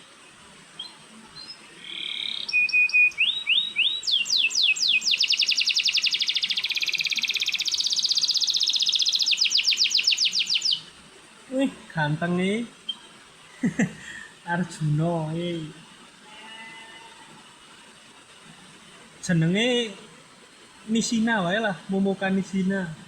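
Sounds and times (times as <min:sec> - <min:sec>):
canary singing and trilling: 0:00.8 - 0:10.9.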